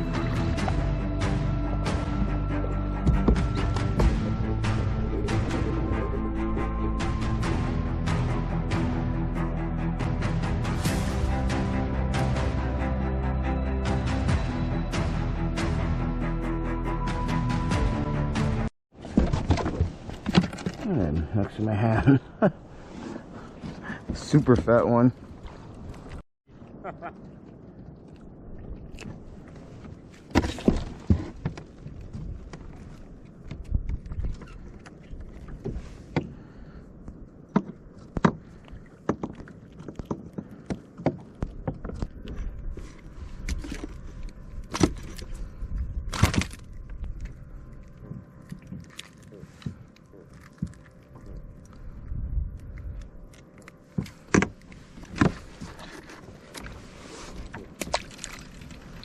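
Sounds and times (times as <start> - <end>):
wind and water rumble: 0.0 - 16.2, 17.5 - 59.0
fishing gear clattering on kayak: 19.0 - 20.9.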